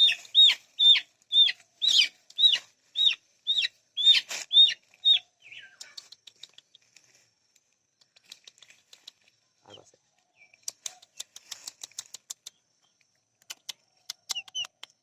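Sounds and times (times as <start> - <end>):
bird shrill calls: 0.0 - 6.0.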